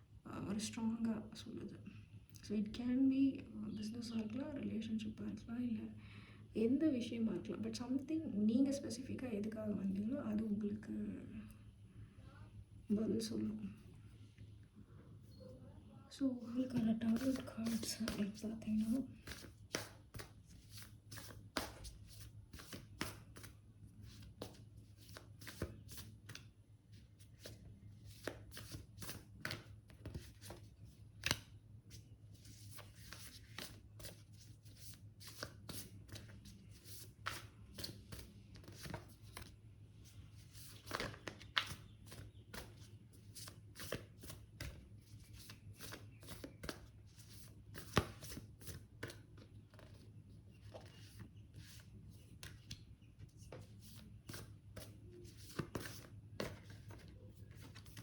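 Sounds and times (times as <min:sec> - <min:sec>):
faint low hum: 0:00.0 - 0:58.0
cards being shuffled: 0:16.7 - 0:52.8, 0:53.4 - 0:58.0.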